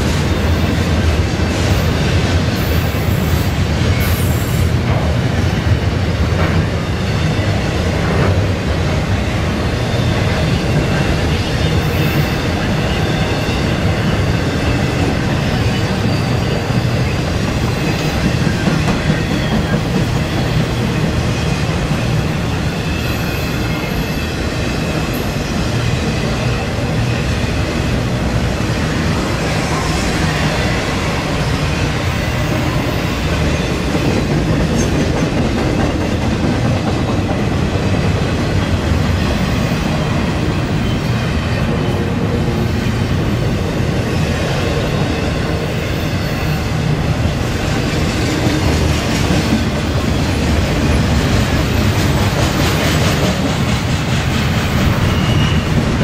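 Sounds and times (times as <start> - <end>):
freight cars rumbling on rail: 0.0 - 56.0
high-pitched wheel squeal: 11.8 - 20.8, 54.6 - 56.0.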